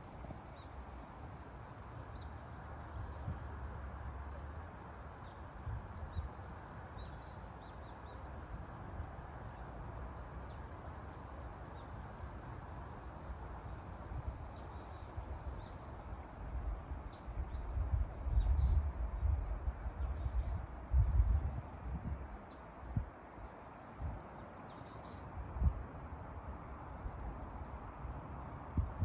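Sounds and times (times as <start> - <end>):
low buffeting rumbles: 27.0 - 29.0.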